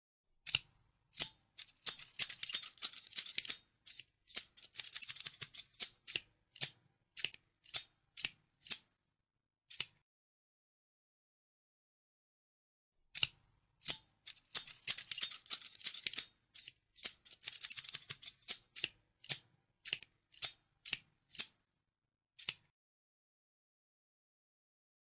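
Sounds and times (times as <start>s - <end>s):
scissors snipping: 0.4s - 8.9s, 9.7s - 10.0s, 13.1s - 21.6s, 22.4s - 22.7s.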